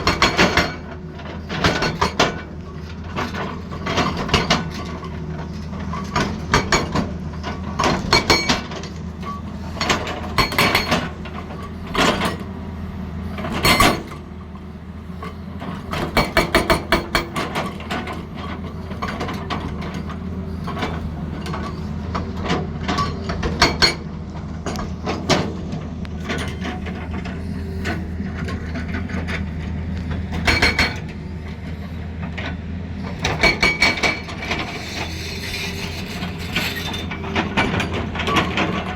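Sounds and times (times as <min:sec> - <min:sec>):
excavator engine running: 0:00.0 - 0:38.9
metallic knocks and clanks: 0:09.8 - 0:12.4, 0:15.9 - 0:31.2, 0:33.2 - 0:35.1.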